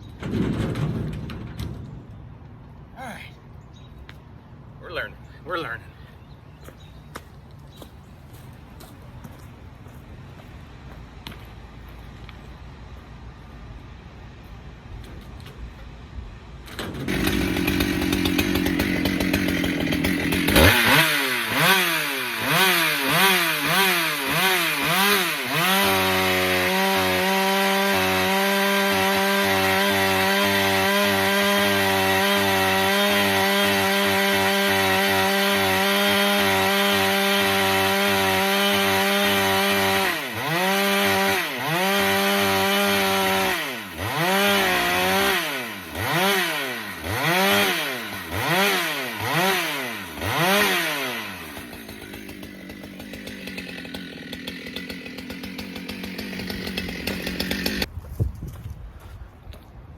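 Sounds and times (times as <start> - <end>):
chainsaw cutting wood: 16.7 - 57.9
chainsaw revving: 16.8 - 57.9.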